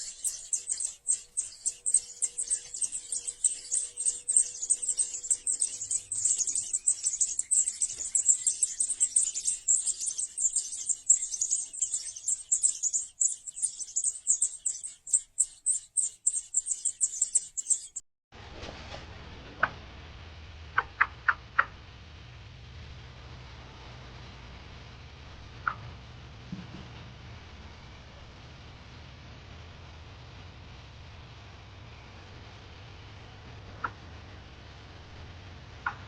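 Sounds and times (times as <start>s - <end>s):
nestlings chirping: 0.0s - 18.0s.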